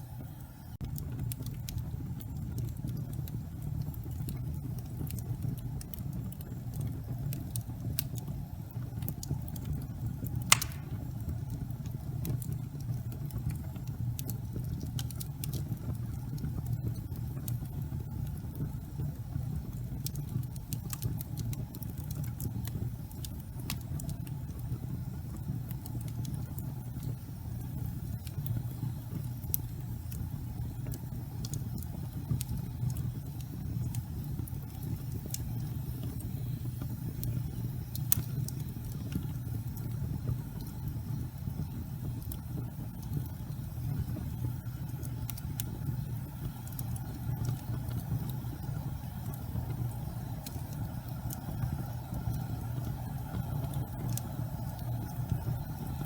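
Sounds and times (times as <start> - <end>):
gas fire rumbling and crackling: 0.0 - 56.0.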